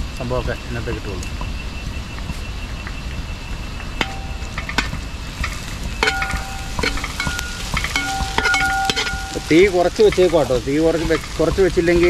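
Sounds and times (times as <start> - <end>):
vegetables sizzling in hot oil: 4.0 - 12.0
spatula knocking against pan: 5.5 - 12.0.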